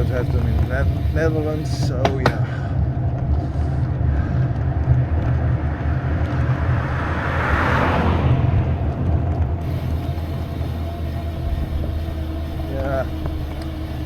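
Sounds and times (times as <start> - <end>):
low vibration rumble: 0.0 - 14.0
hissing swell: 6.5 - 14.0.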